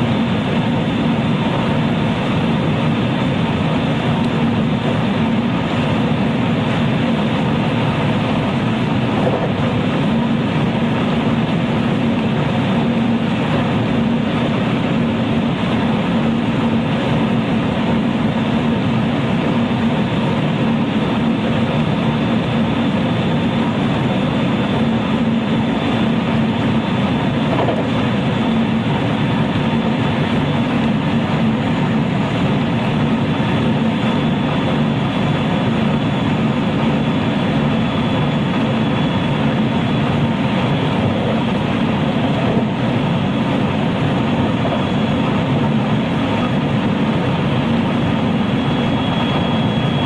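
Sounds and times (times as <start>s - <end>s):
train wheels rumbling on rail: 0.0s - 50.0s
faint steady high tone: 48.4s - 50.0s.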